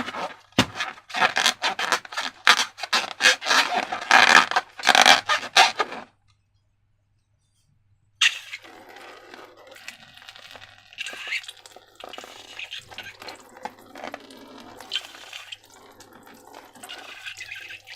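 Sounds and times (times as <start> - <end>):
slime squelching and dripping: 9.7 - 17.9.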